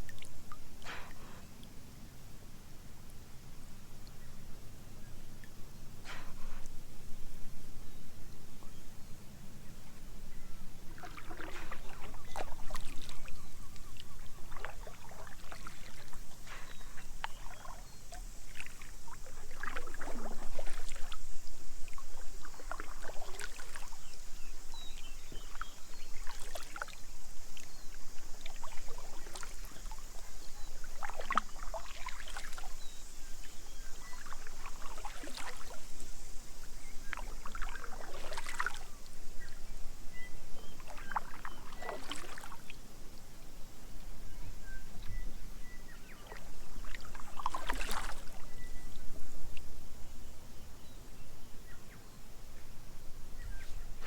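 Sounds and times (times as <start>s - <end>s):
kayak paddle splashing: 0.0s - 1.6s, 5.4s - 6.8s, 10.7s - 42.9s, 45.0s - 49.7s
steady high hiss: 16.0s - 40.6s.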